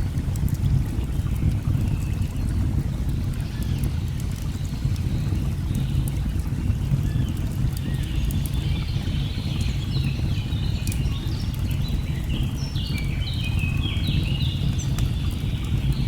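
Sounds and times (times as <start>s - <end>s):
birds singing: 7.1s - 16.0s.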